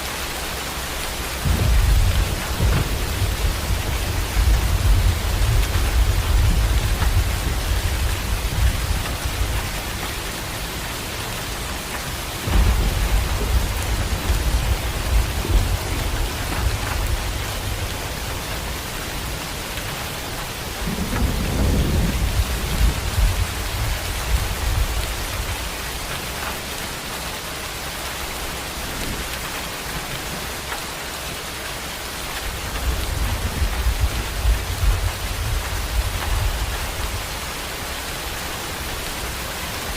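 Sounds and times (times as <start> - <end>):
heavy rain pouring: 0.0 - 39.9
thunder rolling: 1.4 - 10.1, 12.4 - 18.8, 20.7 - 25.8.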